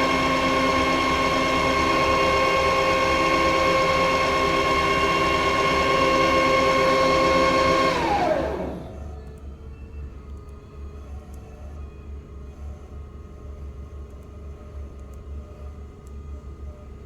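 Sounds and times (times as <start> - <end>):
machine spindle whine: 0.0 - 9.3.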